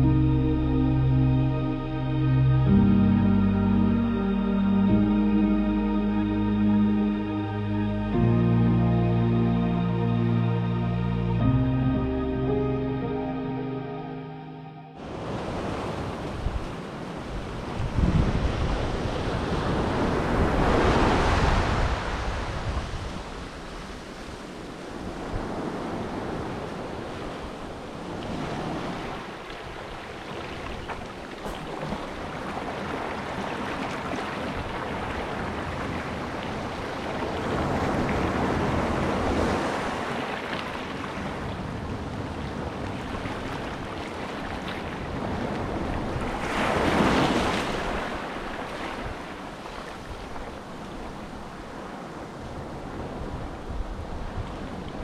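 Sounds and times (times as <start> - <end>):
sea waves washing onto shore: 15.0 - 55.0
wind buffeting microphone: 15.2 - 23.5.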